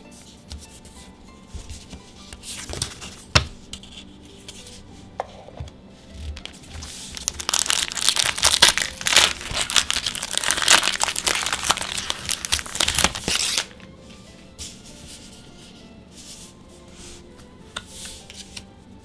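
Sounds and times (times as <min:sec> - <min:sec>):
foil wrapper tearing and crinkling: 0:06.4 - 0:13.8.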